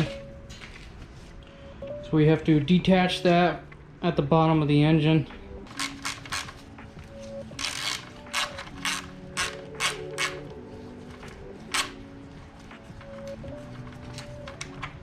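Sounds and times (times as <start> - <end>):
quiet background music: 0.0 - 15.0
ratchet wrench clicking: 5.7 - 6.5.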